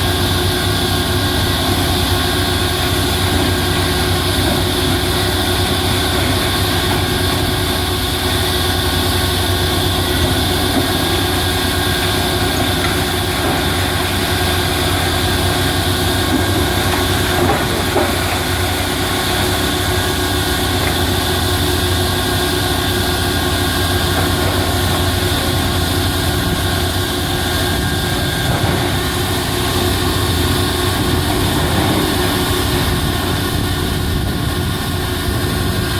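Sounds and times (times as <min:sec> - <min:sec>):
diesel engine humming: 0:00.0 - 0:35.9
steady whine: 0:00.0 - 0:35.9.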